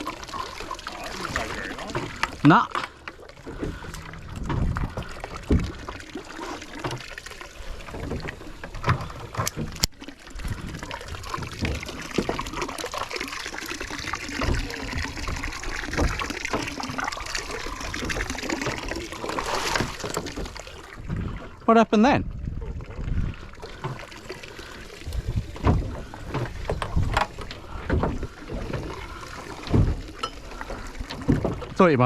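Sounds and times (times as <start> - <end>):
water trickling and splashing: 0.0 - 32.0
knocks on boat: 4.4 - 5.8, 25.6 - 28.9, 29.7 - 30.4.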